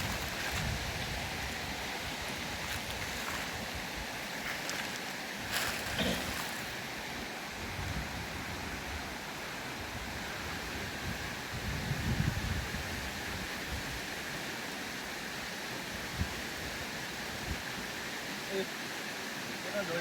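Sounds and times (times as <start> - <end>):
river water rushing: 0.0 - 7.6.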